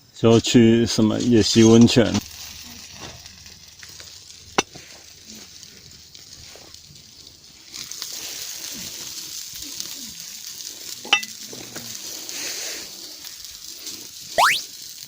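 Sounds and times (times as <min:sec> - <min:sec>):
quick rising whistle: 0:14.4 - 0:14.6.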